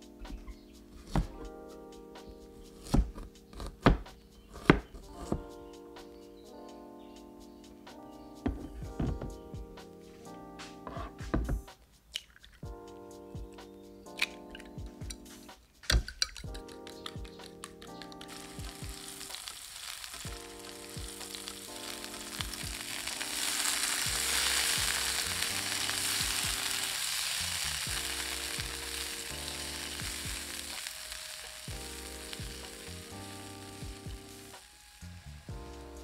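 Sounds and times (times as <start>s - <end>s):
soft background music: 0.0s - 36.0s
vegetables sizzling in oil: 18.2s - 36.0s.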